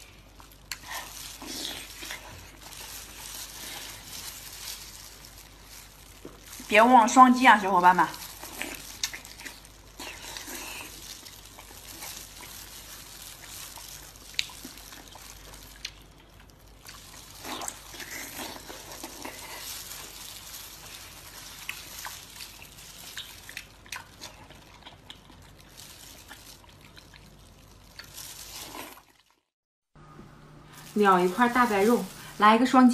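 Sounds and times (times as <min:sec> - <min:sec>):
wet chewing and lip-smacking: 0:00.0 - 0:04.2, 0:08.3 - 0:29.2.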